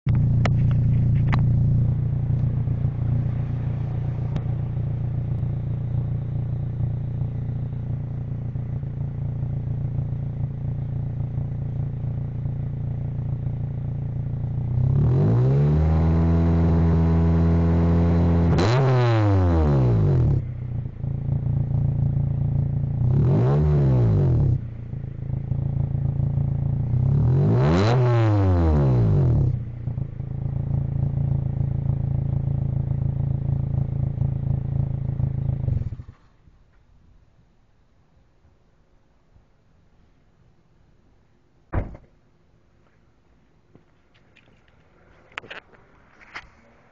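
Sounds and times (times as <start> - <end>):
car engine idling and revving: 0.1 - 36.4.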